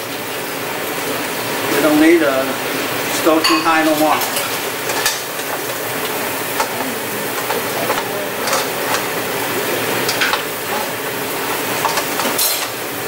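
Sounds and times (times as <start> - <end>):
crab legs sizzling in a pan: 0.0 - 13.0
utensil clicking against pan: 4.3 - 9.2, 10.0 - 10.5, 11.8 - 12.8.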